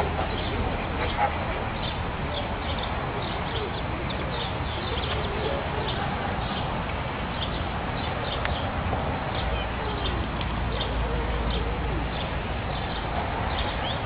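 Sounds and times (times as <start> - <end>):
flamingos honking and chirping: 0.0 - 6.2
steady background noise: 0.0 - 14.0.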